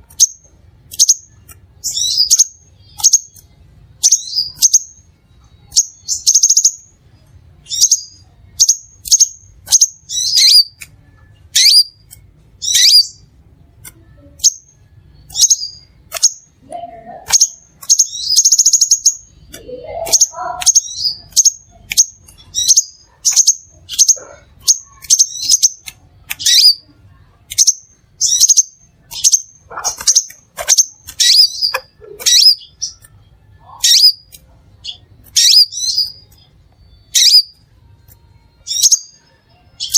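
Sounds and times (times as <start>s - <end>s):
bird chirping: 0.0s - 7.0s, 7.6s - 26.9s, 27.5s - 39.9s
buzzy bird trills: 7.7s - 10.8s, 14.0s - 26.9s, 27.5s - 37.6s.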